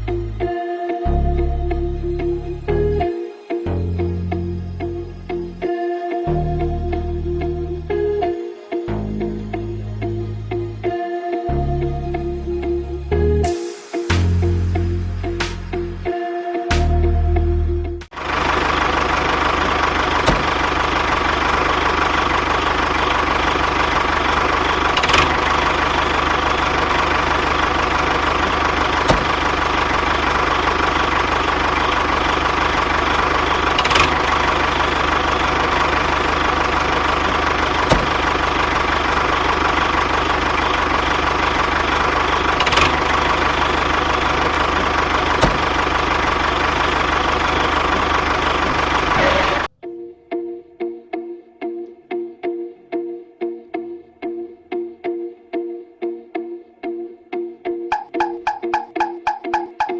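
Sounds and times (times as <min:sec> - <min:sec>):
motor humming: 0:18.1 - 0:49.7.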